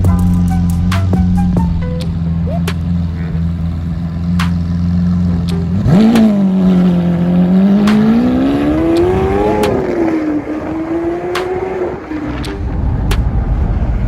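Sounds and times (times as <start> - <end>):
car engine accelerating hard: 0.0 - 14.0
sharp exhaust cracks: 0.0 - 14.0.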